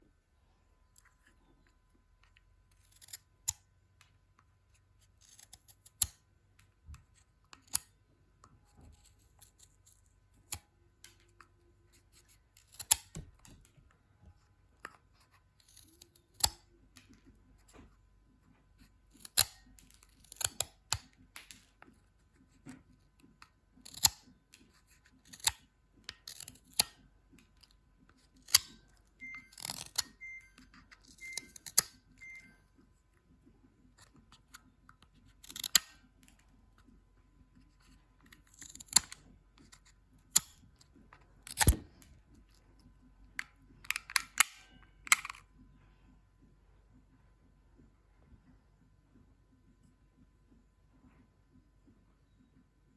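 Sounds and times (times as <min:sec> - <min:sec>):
pencil being sharpened: 0:29.5 - 0:32.0.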